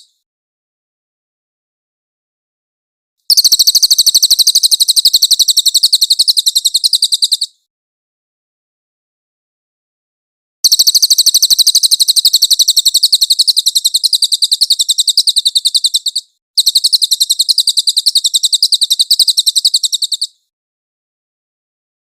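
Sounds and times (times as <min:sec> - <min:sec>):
songbird high-pitched rapid trill: 0:03.3 - 0:07.6, 0:10.6 - 0:20.5.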